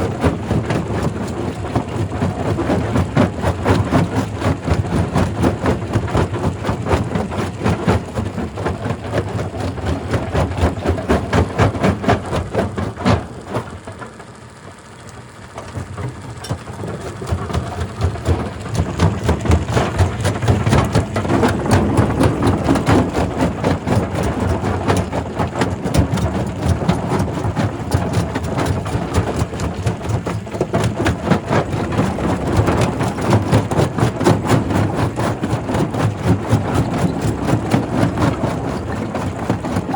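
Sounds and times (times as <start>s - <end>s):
heavy machinery running: 15.4s - 39.9s.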